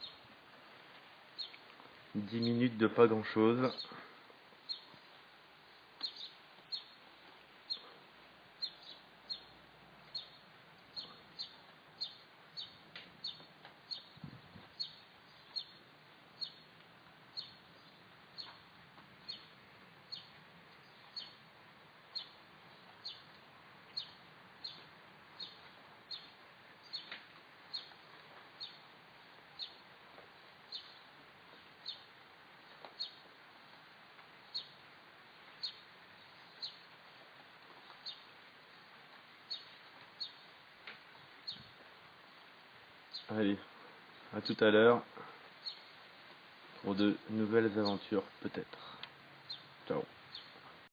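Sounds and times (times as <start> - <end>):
bird chirping: 0.0 - 0.2, 1.4 - 2.8, 3.5 - 4.0, 4.6 - 5.1, 6.0 - 7.1, 7.7 - 8.0, 8.6 - 16.7, 17.3 - 21.5, 22.1 - 29.9, 30.6 - 32.1, 32.7 - 33.3, 34.4 - 34.8, 35.4 - 37.0, 37.7 - 38.3, 39.5 - 41.8, 43.1 - 43.4, 45.6 - 46.0, 46.9 - 50.6
outdoor hiss: 0.0 - 50.9.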